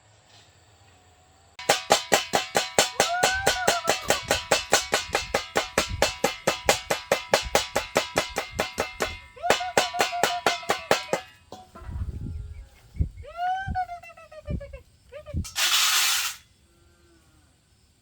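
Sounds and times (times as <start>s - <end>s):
metallic percussion beat: 1.6s - 12.0s.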